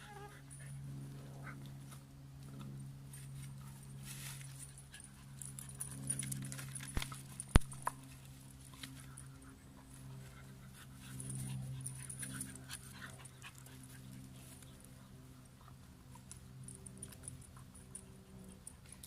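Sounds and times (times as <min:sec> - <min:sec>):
steady low hum: 0:00.0 - 0:19.0
dog panting: 0:09.0 - 0:16.3.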